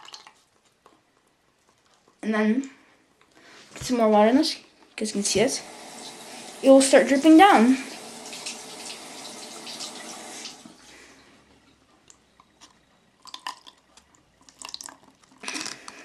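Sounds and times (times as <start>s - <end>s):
water dripping: 0.0s - 0.4s, 5.1s - 11.0s, 12.1s - 15.9s
water trickling into plastic bottle: 0.0s - 0.8s, 12.4s - 16.0s.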